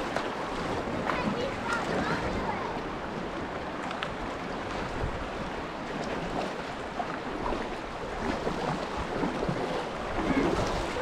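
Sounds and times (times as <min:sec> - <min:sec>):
creek water rushing and splashing: 0:00.0 - 0:11.0
wind noise on microphone: 0:04.2 - 0:06.6.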